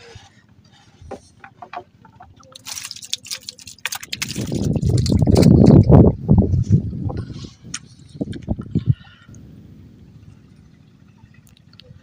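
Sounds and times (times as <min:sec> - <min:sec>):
small knocks: 0:01.0 - 0:02.6
water splashing and dripping: 0:02.0 - 0:06.0.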